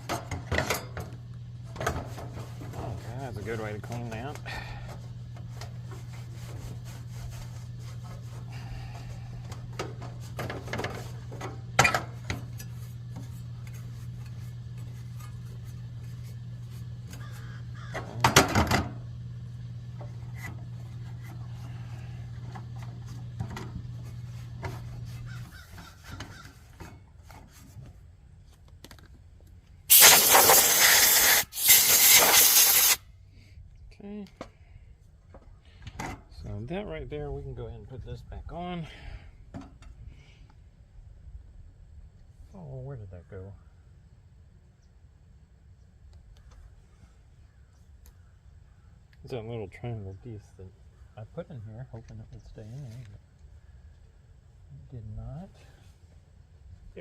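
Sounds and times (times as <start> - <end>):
steady low hum: 0.0 - 57.0
compressed air blow gun blasts: 29.9 - 33.0.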